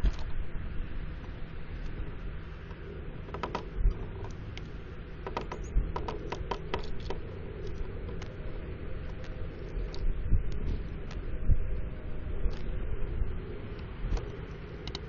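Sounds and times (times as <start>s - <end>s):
low steady rumble: 0.0s - 15.0s
birds pecking on feeder: 1.2s - 11.2s.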